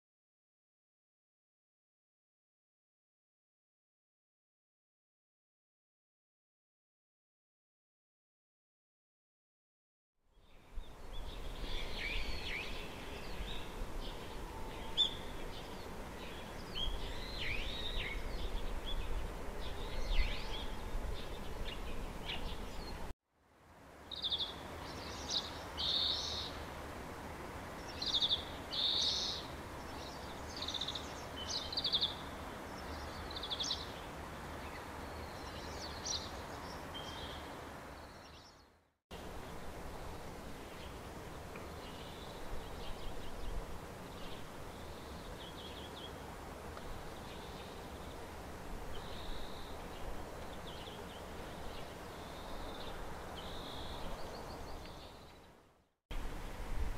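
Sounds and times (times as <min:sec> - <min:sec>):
low background hiss: 0:10.3 - 0:38.6, 0:39.2 - 0:56.9
songbirds chirping and trilling: 0:10.4 - 0:23.1, 0:24.0 - 0:26.7, 0:27.7 - 0:38.8, 0:39.4 - 0:55.7.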